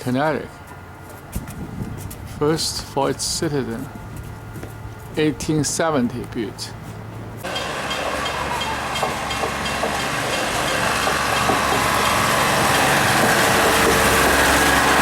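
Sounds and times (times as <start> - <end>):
train rumbling past: 6.6 - 15.0
wheels clicking over rail joints: 7.4 - 15.0.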